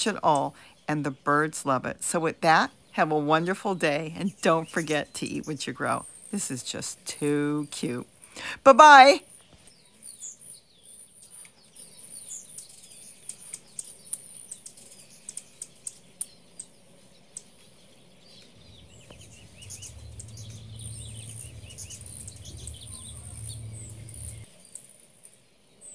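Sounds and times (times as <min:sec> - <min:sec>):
songbirds chirping: 0:00.0 - 0:25.9
low rumble: 0:18.4 - 0:24.5.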